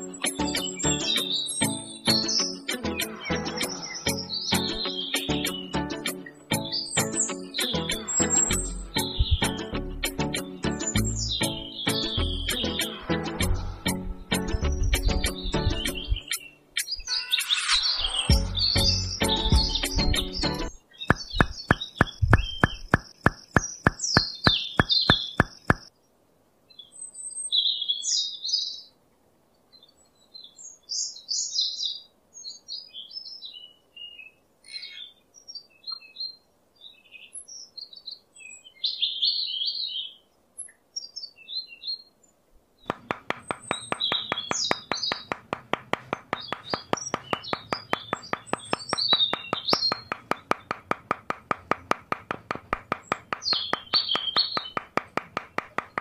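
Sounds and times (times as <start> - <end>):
birds chirping and twittering: 0.0 - 29.0, 29.6 - 56.0
rhythmic ticking beat: 7.9 - 10.5, 21.1 - 25.9, 42.9 - 56.0.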